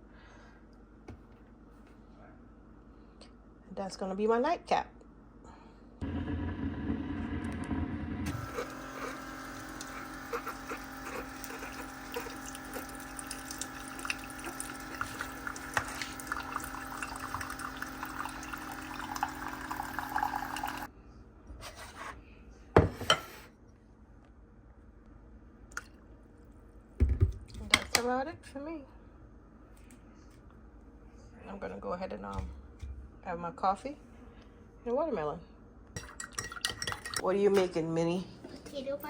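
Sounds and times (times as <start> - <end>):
coffee maker humming: 6.0 - 20.9
liquid trickling into cup: 8.3 - 20.9.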